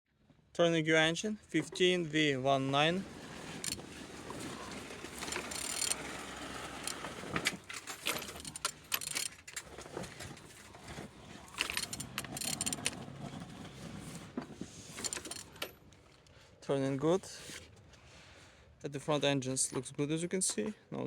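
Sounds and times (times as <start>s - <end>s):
metallic clicks from engine: 3.6s - 3.8s, 5.1s - 13.6s, 15.0s - 16.4s
wrench ratcheting: 5.2s - 6.1s, 6.8s - 7.0s, 7.9s - 9.5s, 11.6s - 13.0s, 15.0s - 15.6s.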